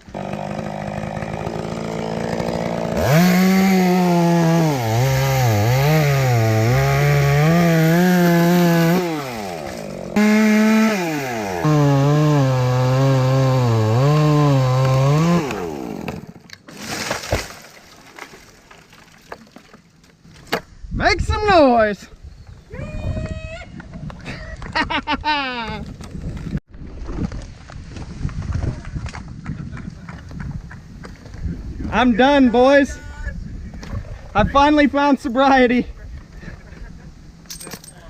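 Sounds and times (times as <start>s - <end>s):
chainsaw cutting wood: 0.0s - 17.5s.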